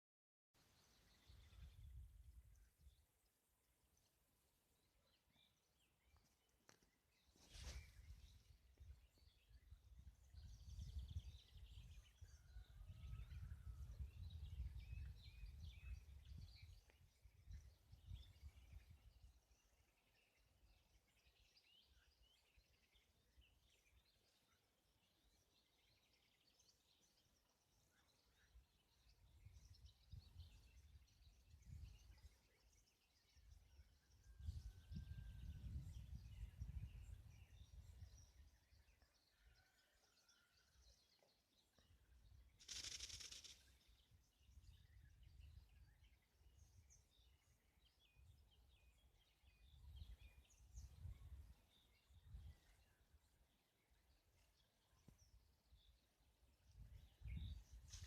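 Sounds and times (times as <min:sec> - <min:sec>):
small birds chirping: 0:00.6 - 0:58.0.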